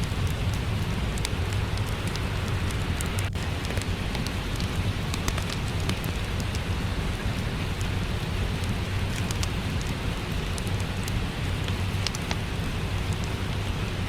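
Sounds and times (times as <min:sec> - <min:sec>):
steady rain: 0:00.0 - 0:14.0
wood fire crackling: 0:00.0 - 0:14.0.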